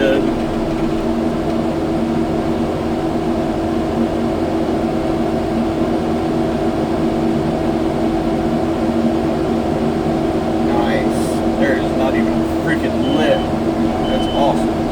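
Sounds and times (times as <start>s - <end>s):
diesel engine under load: 0.0s - 14.9s.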